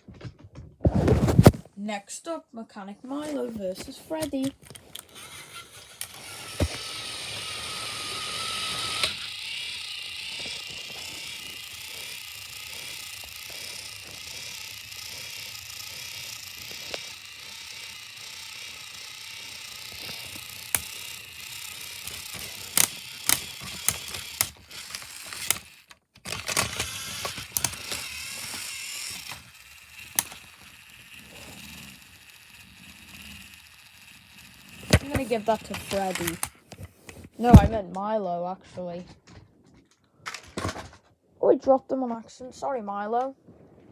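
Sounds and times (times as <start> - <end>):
toy train motors whirring: 3.1 - 37.7.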